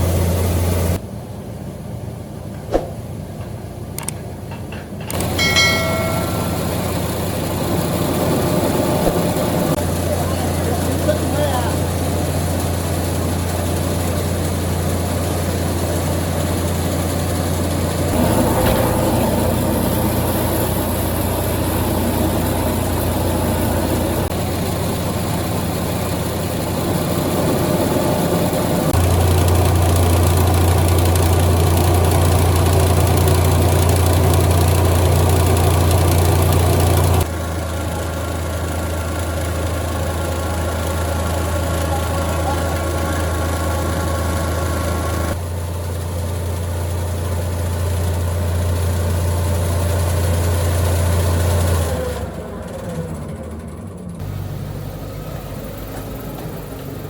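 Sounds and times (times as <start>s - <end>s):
machine humming: 5.0s - 14.9s, 15.7s - 37.3s.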